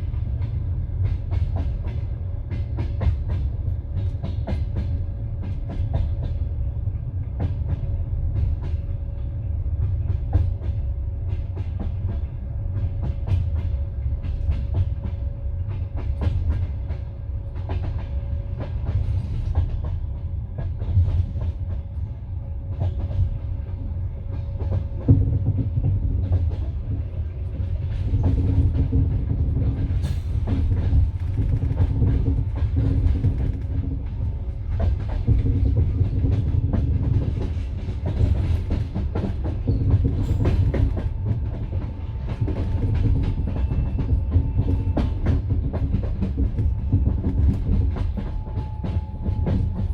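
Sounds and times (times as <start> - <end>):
train wheels clattering: 0.0 - 49.9.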